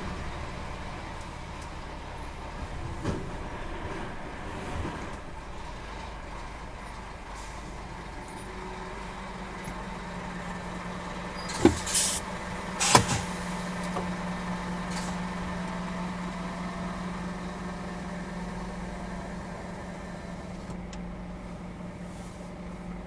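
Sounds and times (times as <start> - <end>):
low vehicle hum: 0.0 - 23.0
short hiss: 11.6 - 13.7.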